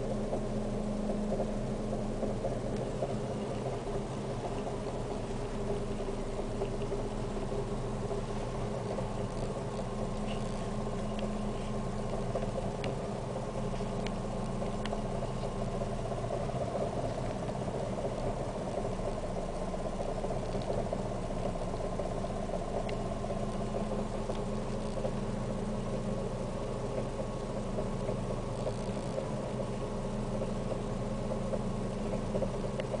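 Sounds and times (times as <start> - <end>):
car engine idling roughly: 0.0 - 33.0
faint ticks: 0.0 - 33.0.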